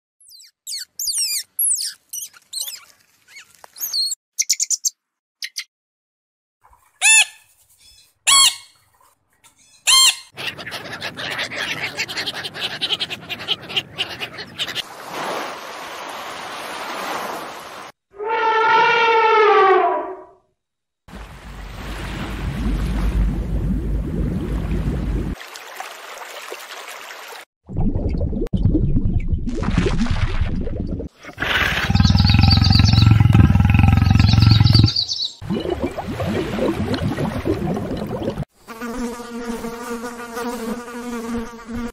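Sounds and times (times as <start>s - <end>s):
high bird chirps: 0.2s - 5.7s, 7.0s - 8.8s, 31.6s - 35.4s.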